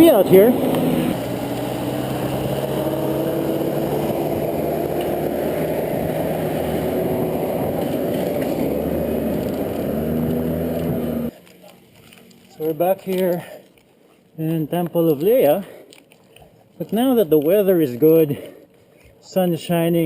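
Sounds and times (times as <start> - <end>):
vehicle engine running: 0.0 - 11.3.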